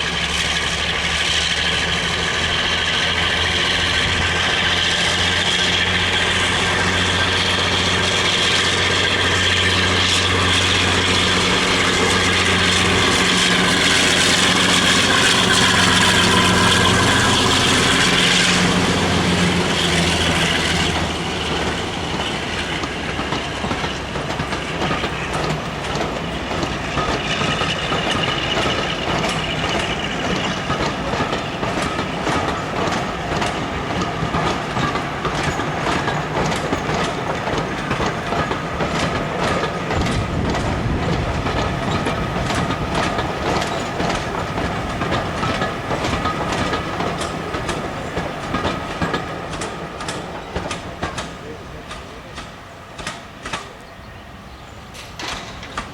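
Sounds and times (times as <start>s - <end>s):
train wheels clicking on rail joints: 0.0s - 55.9s.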